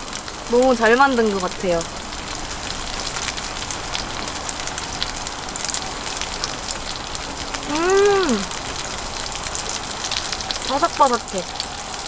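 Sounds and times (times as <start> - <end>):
oil sizzling in a frying pan: 0.0 - 12.0
short voiced sound: 7.7 - 8.5.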